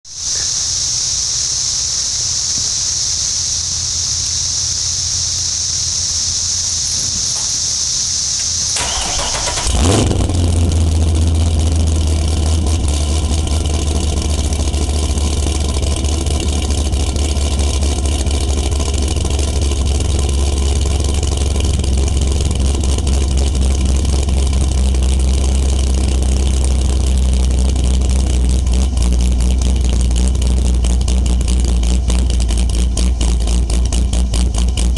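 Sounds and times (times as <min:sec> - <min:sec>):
steady high hiss: 0:00.1 - 0:09.7
loud deep lumpy engine idle: 0:00.1 - 0:34.9
engine cranking and firing: 0:06.8 - 0:34.9.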